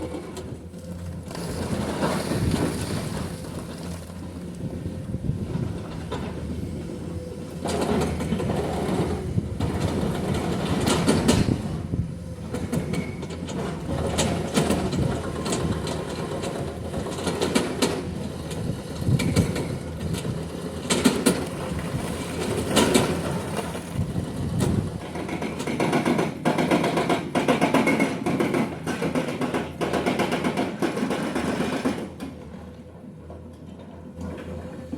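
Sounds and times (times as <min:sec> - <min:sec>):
excavator engine running: 0:00.0 - 0:34.9
hydraulic breaker hammering rock: 0:07.6 - 0:21.8, 0:22.4 - 0:32.6.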